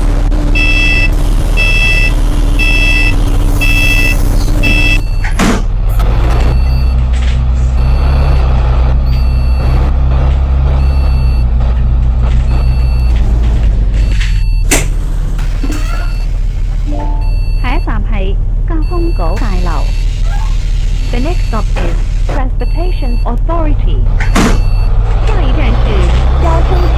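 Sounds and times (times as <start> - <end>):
bus warning beeps: 0.0 - 7.1, 9.0 - 9.9, 10.7 - 11.6, 12.4 - 13.2, 13.9 - 26.9
bus engine drone: 0.0 - 26.9.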